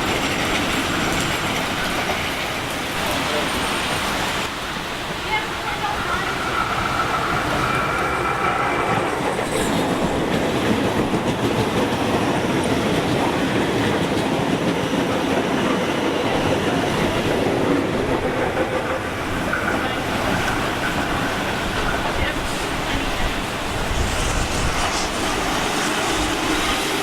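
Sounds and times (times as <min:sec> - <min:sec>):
train wheels clattering over rail joints: 0:00.0 - 0:04.3, 0:05.0 - 0:27.0
faint train whine: 0:00.0 - 0:27.0.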